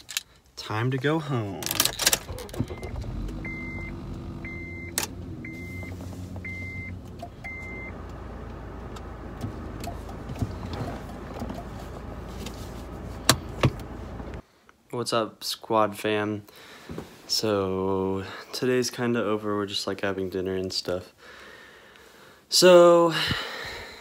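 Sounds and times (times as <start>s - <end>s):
car engine starting and idling: 1.6s - 14.4s
high warning chimes: 2.8s - 8.0s.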